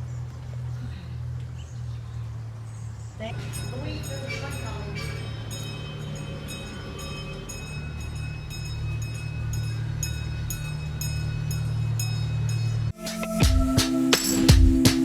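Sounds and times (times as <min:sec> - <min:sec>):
train running with clicks: 0:03.2 - 0:13.4
music with percussion: 0:12.9 - 0:15.0.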